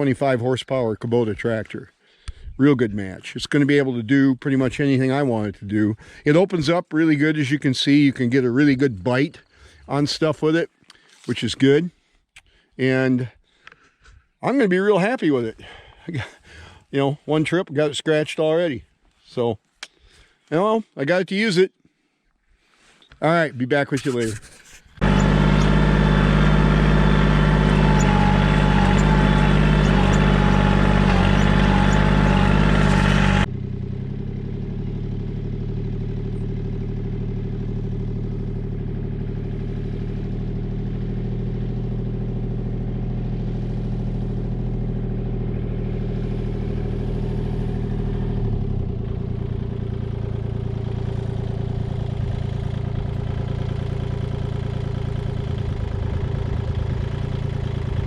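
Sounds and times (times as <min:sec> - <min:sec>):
diesel tractor engine running: 0:25.0 - 0:58.0.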